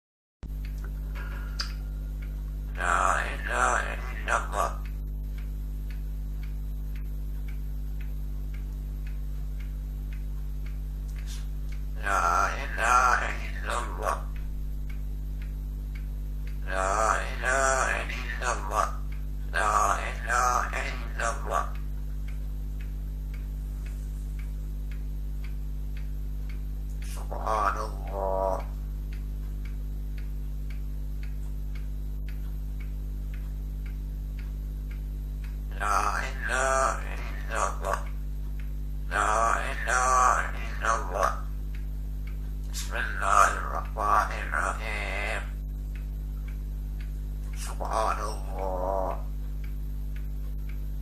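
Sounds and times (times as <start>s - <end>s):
faint ticking: 0.4s - 51.0s
low electrical hum: 0.4s - 51.0s
pitched voice-like call: 2.8s - 4.8s, 12.0s - 14.3s, 16.7s - 19.0s, 19.6s - 21.8s, 27.1s - 28.7s, 35.7s - 38.0s, 39.1s - 41.5s, 42.8s - 45.5s, 47.6s - 49.3s.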